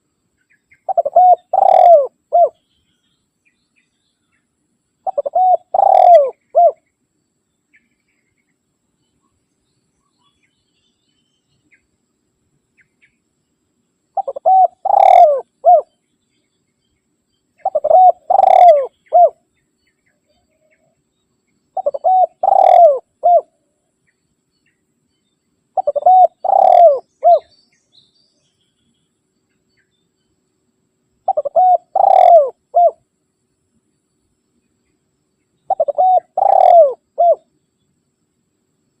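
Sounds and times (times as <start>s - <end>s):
dove cooing: 0.9s - 2.6s, 5.0s - 6.8s, 14.2s - 15.9s, 17.6s - 19.4s, 21.8s - 23.6s, 25.8s - 27.5s, 31.3s - 33.0s, 35.7s - 37.5s.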